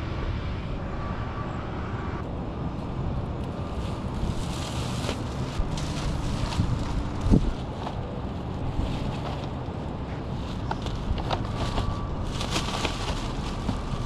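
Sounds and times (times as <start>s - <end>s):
wind buffeting microphone: 3.9s - 14.0s.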